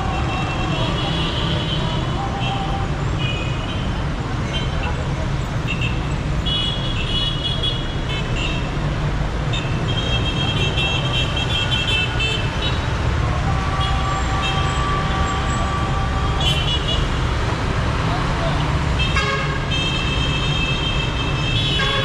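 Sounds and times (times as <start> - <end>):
traffic engines rumbling: 0.0 - 22.0
low steady car horn: 9.6 - 17.3, 19.0 - 22.0
high car horn toots: 13.4 - 17.1, 19.0 - 22.0.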